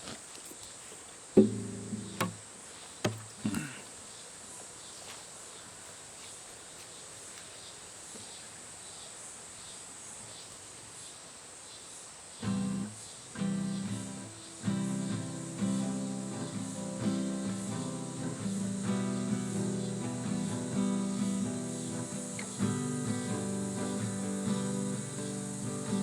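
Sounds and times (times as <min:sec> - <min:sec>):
faint insects chirring: 0:00.0 - 0:26.0
guitar strumming: 0:01.4 - 0:02.4, 0:03.1 - 0:03.7, 0:12.4 - 0:26.0.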